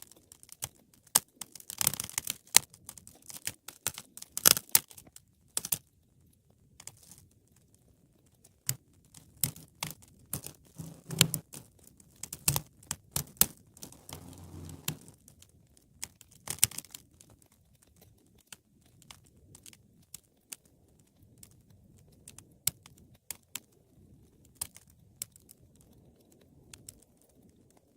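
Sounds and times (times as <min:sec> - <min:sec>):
wood fire crackling: 0:13.8 - 0:15.2.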